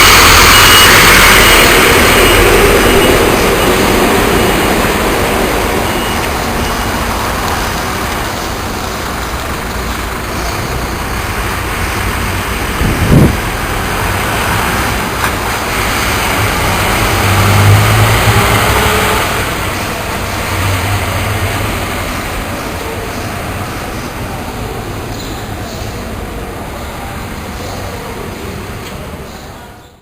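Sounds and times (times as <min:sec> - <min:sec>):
short loud burst: 0:00.0 - 0:03.8
diesel engine running: 0:00.0 - 0:28.8
road traffic noise: 0:00.0 - 0:30.0.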